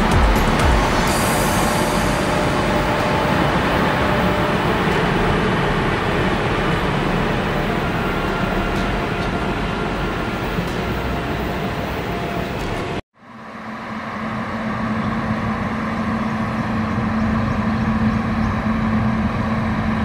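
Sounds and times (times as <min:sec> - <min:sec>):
model train rumbling on track: 0:00.0 - 0:13.0.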